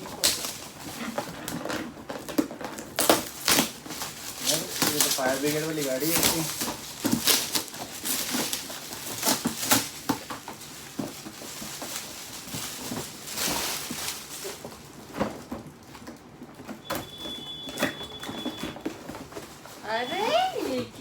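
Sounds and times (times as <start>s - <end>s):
toy and packaging clicks and knocks: 0.0s - 19.7s
faint high tone: 19.9s - 21.0s.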